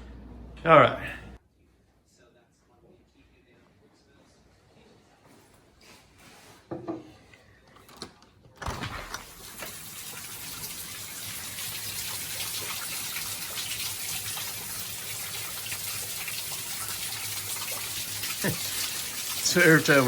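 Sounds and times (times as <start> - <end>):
heavy rain hissing: 18.0 - 20.0.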